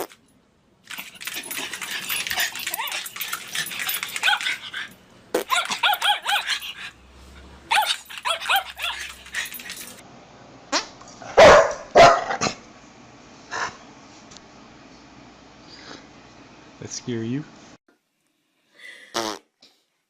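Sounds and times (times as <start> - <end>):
dog yapping: 1.3 - 6.9, 7.7 - 10.0, 11.3 - 12.6.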